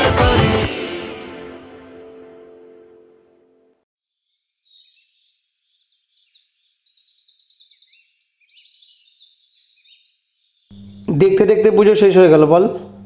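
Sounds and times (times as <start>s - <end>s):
music: 0.0s - 3.8s
songbirds chirping and trilling: 4.1s - 13.0s.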